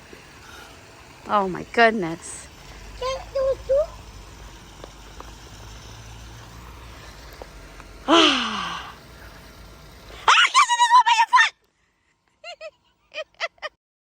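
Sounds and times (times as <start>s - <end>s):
person sighing: 8.1s - 9.0s.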